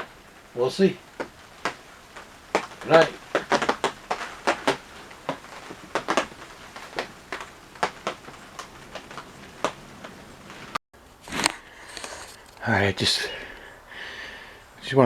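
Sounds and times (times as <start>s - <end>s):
sharp clicks and pops: 1.0s - 12.7s.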